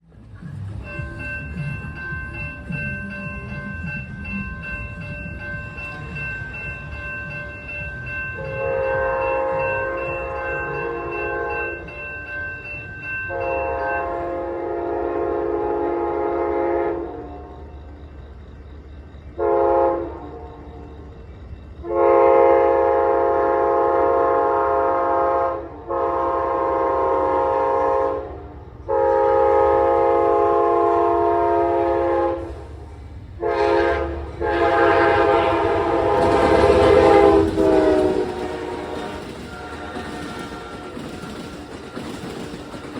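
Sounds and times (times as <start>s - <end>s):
train rumble: 0.0s - 42.9s
train air horn blasts: 8.4s - 11.8s, 13.3s - 17.6s, 19.4s - 20.8s, 21.8s - 32.8s, 33.4s - 41.2s.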